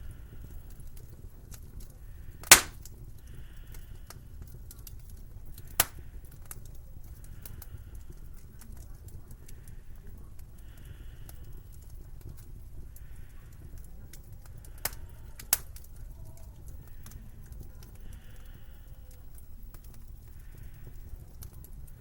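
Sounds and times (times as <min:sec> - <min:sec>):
wood fire crackling: 0:00.0 - 0:22.0
sharp loud pops: 0:02.4 - 0:02.8.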